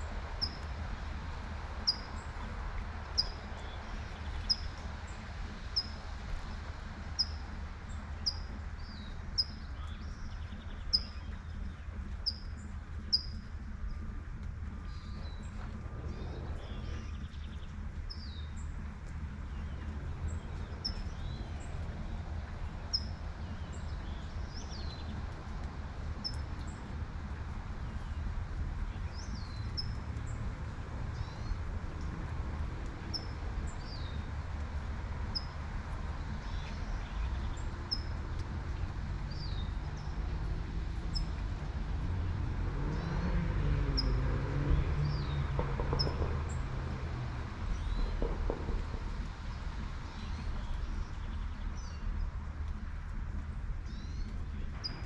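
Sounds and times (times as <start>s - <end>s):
light rain hiss: 0.0s - 55.0s
low traffic rumble: 0.0s - 55.0s
birds chirping: 1.8s - 55.0s
car passing: 38.4s - 53.6s.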